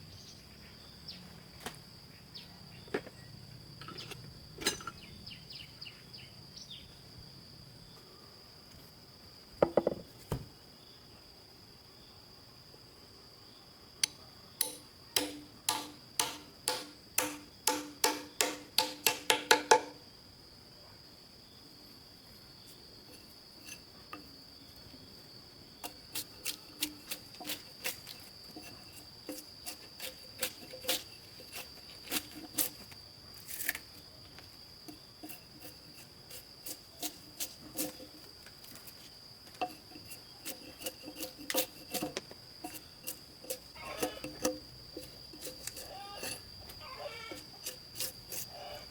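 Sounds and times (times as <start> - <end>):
insects droning: 0.0 - 48.9
sharp knocks: 14.6 - 20.0.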